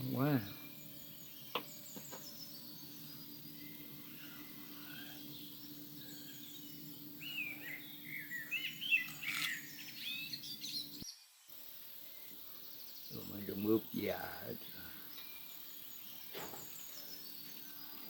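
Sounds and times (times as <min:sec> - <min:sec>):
steady low hum: 0:00.0 - 0:11.0
birds chirping: 0:00.0 - 0:18.0.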